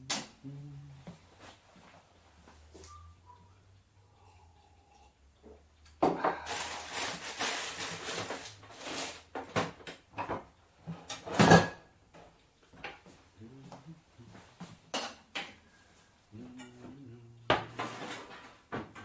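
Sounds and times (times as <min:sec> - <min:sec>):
kitchen knocks and clatters: 0:05.5 - 0:13.0, 0:17.5 - 0:19.0.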